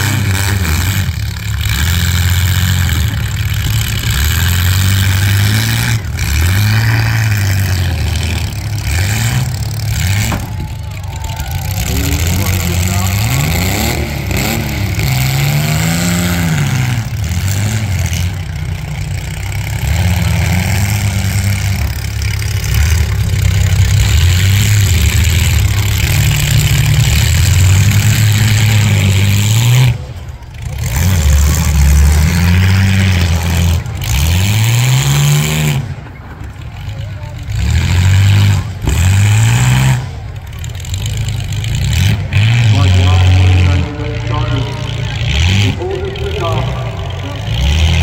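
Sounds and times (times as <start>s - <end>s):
loud steady din: 0.0s - 36.4s, 41.9s - 48.0s
car engines revving: 0.0s - 48.0s.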